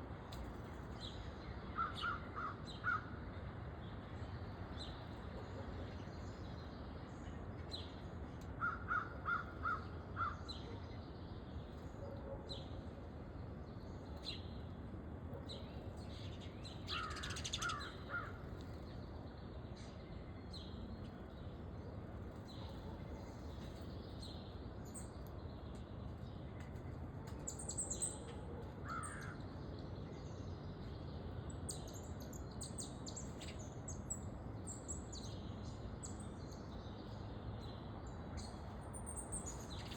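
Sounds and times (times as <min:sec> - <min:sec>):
small birds chirping: 0:15.4 - 0:21.6, 0:28.9 - 0:39.9
loud bird calls: 0:16.9 - 0:18.5, 0:28.8 - 0:29.4.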